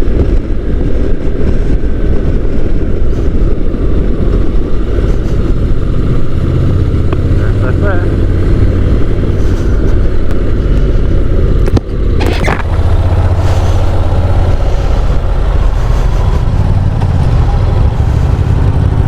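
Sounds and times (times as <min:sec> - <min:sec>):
motorcycle engine running: 0:00.0 - 0:19.0
wind rushing over microphone: 0:00.0 - 0:19.0.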